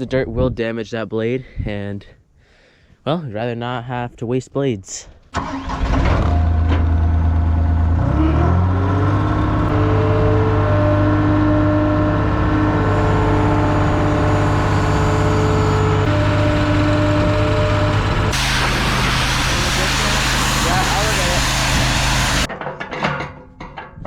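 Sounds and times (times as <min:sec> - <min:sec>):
skid steer engine revving: 0:05.4 - 0:22.5.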